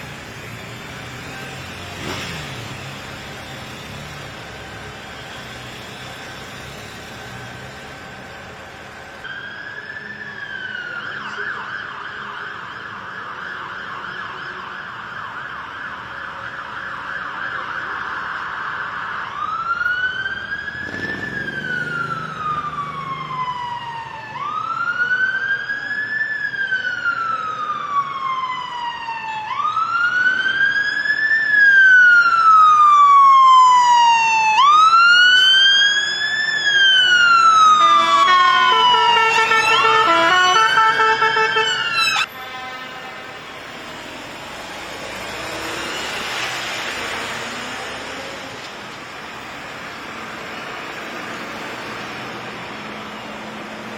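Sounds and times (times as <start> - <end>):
emergency siren: 0.0 - 53.9.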